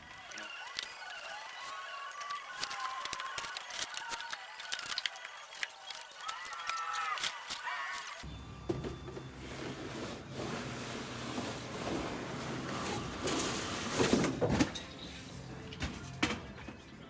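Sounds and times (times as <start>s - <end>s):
metal scraping and clunking: 8.6s - 17.0s.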